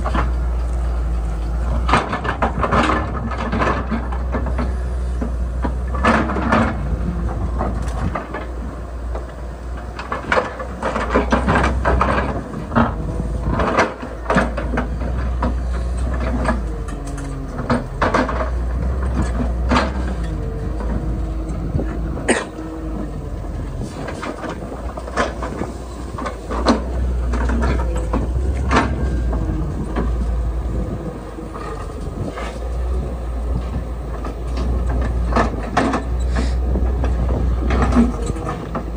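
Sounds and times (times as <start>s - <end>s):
excavator engine rumbling: 0.0s - 38.9s
metallic clanks and knocks: 9.9s - 38.9s
hydraulic whines: 14.4s - 38.9s.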